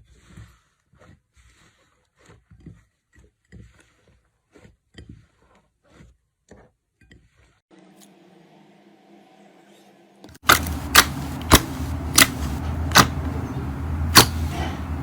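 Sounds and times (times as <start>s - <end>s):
faint steady hum: 10.4s - 15.0s
slime squelching: 14.1s - 15.0s.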